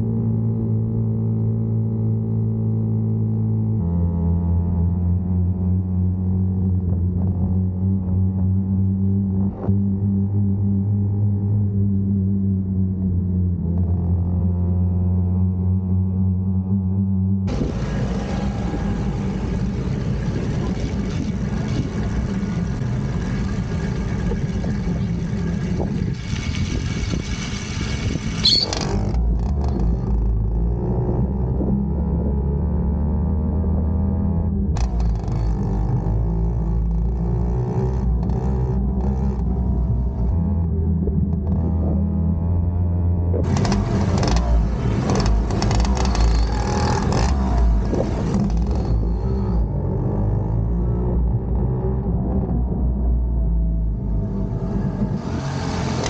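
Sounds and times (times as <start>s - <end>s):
vehicle engine rumbling: 0.0s - 56.0s
loud rushing noise with crackles: 17.5s - 29.1s
loud high squeal: 28.4s - 29.0s.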